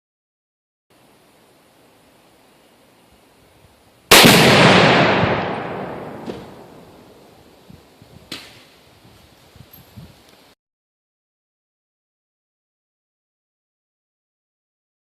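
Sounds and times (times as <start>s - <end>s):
loud explosion boom: 4.1s - 6.8s.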